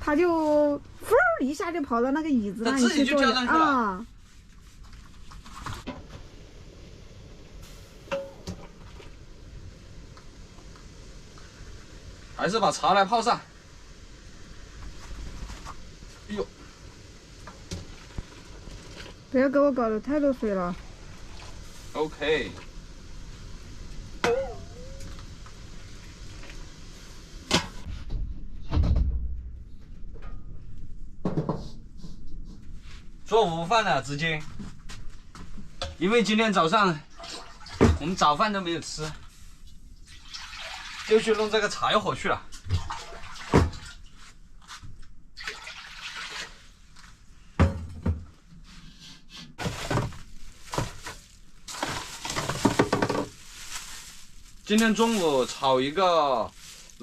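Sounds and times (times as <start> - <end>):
water running and splashing: 8.5 - 27.8, 37.1 - 39.4, 40.0 - 44.2, 45.4 - 47.0, 49.9 - 57.0.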